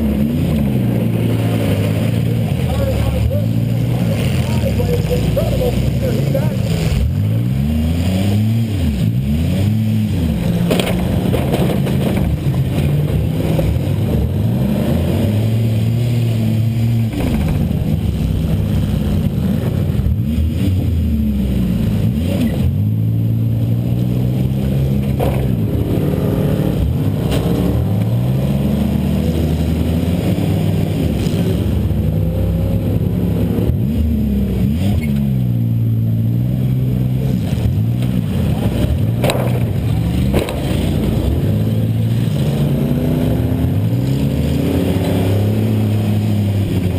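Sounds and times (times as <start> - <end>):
car engine revving: 0.0 - 46.9
sharp impact knocks: 17.1 - 18.0.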